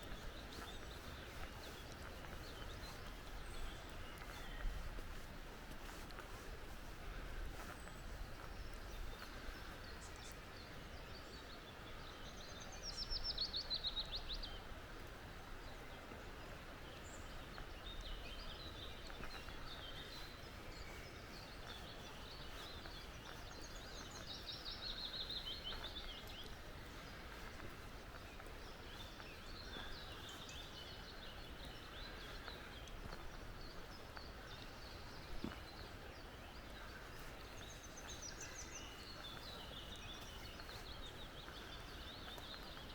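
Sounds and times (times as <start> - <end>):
forest birds calling: 0.0 - 42.9.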